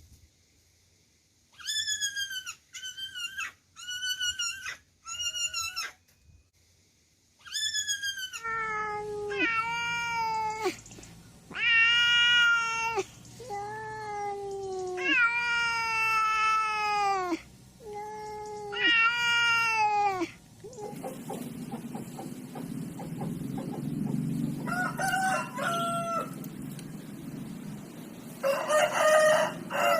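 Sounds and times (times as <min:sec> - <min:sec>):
cat meowing: 0:07.4 - 0:10.8, 0:11.5 - 0:21.0.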